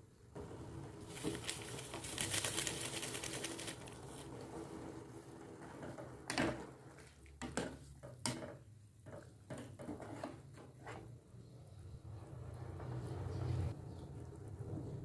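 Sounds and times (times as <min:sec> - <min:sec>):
dishes knocking and clinking: 0:07.4 - 0:10.0.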